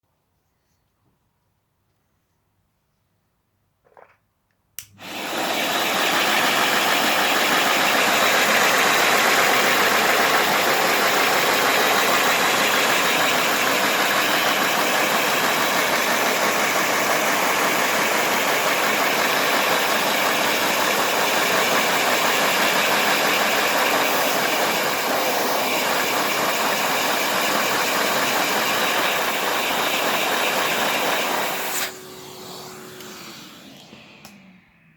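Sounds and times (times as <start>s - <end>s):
toy engine running: 5.0s - 31.8s
suction rushing: 5.0s - 34.9s.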